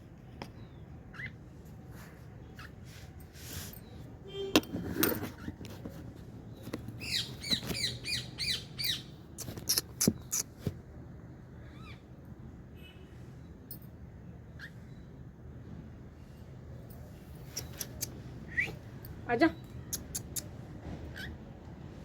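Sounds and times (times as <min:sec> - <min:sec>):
small animal chirping: 0:07.0 - 0:10.7, 0:17.4 - 0:18.8, 0:19.8 - 0:20.6.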